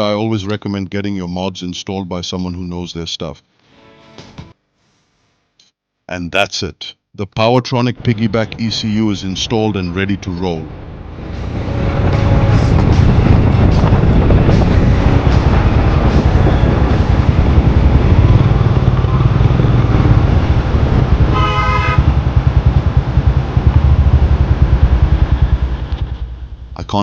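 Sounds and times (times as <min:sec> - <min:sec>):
motorcycle engine running loud: 0:11.2 - 0:26.8
horn honk: 0:21.2 - 0:22.3.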